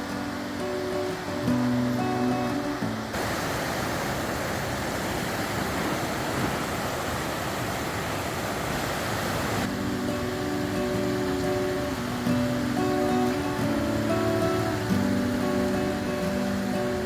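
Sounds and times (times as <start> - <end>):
acoustic guitar music: 0.0 - 3.2, 9.6 - 17.0
mountain river rushing: 0.0 - 17.0.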